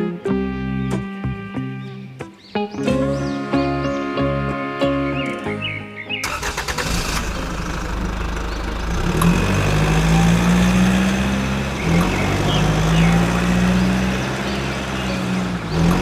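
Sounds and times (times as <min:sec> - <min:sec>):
engine running with low hum: 0:06.2 - 0:16.0.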